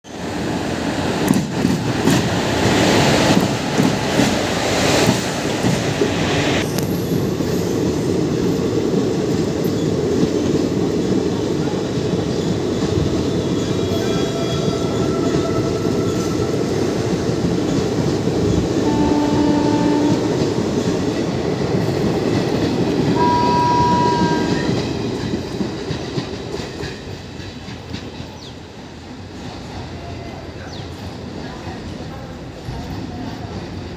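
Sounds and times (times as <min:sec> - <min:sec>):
train wheels rumbling on rail: 0:00.1 - 0:33.9
high steady tone: 0:18.8 - 0:20.8.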